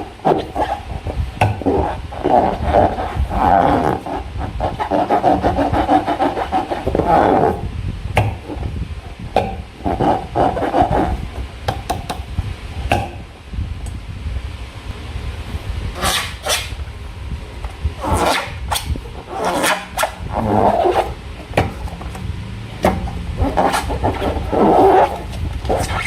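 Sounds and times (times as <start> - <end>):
rubbery squeaking and squelching: 0.0 - 7.7, 9.8 - 11.3, 16.0 - 16.8, 18.0 - 22.0, 22.8 - 26.0.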